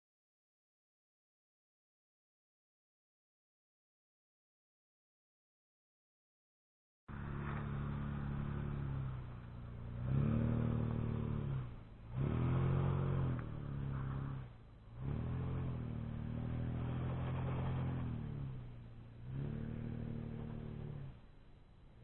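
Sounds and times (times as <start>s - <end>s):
car engine revving: 7.1s - 22.0s.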